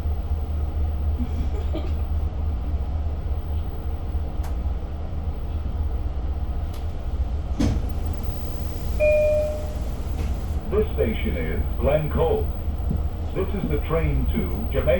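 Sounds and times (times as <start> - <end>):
train coach rumble: 0.0 - 14.9.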